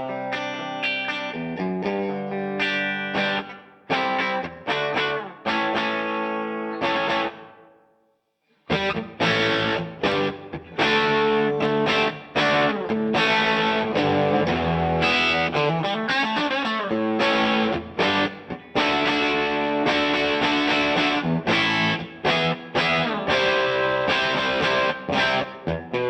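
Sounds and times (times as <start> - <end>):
electric guitar playing: 0.0 - 7.8, 8.6 - 26.0.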